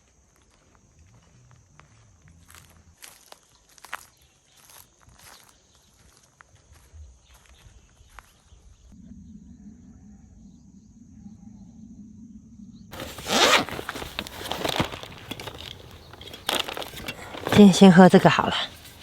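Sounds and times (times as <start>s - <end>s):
zipper pulled in rasping strokes: 12.9s - 19.0s.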